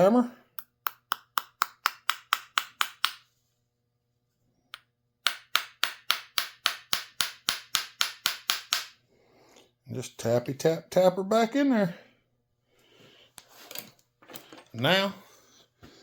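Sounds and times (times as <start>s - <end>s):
small hammer tapping metal: 0.5s - 3.2s, 4.7s - 9.0s.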